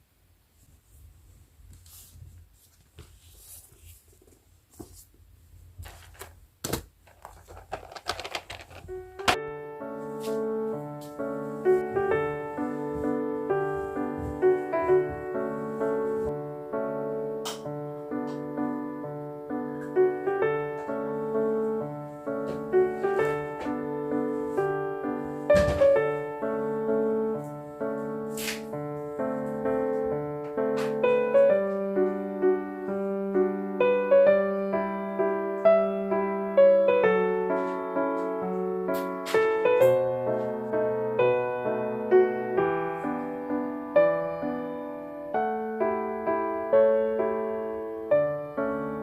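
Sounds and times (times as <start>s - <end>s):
soft rustling: 0.5s - 16.4s
gentle piano chords: 8.8s - 49.0s.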